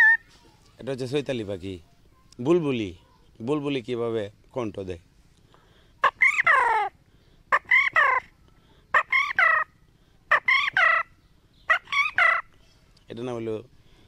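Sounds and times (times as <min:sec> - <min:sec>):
man imitating bird calls: 0:06.0 - 0:06.9, 0:07.5 - 0:08.3, 0:11.7 - 0:12.5.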